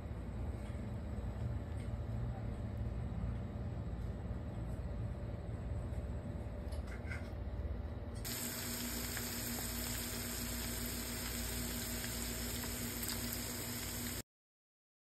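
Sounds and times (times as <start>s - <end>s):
food deep-frying in oil: 8.2s - 14.2s.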